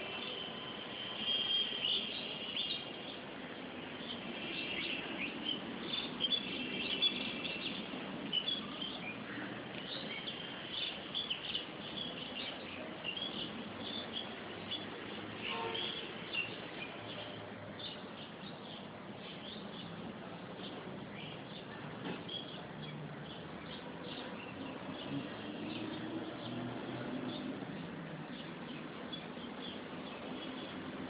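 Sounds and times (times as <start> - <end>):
birds chirping: 0.1 - 31.0.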